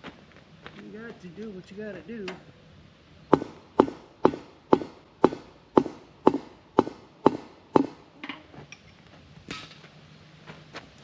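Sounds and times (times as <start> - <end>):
hard ringing striking blows: 3.3 - 8.0.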